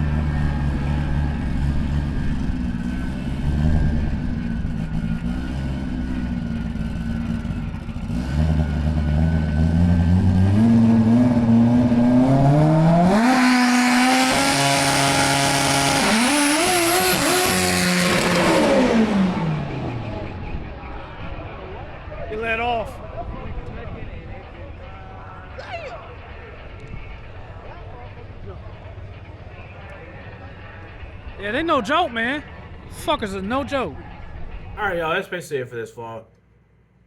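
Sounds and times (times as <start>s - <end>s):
drag car engine revving: 0.0s - 22.2s.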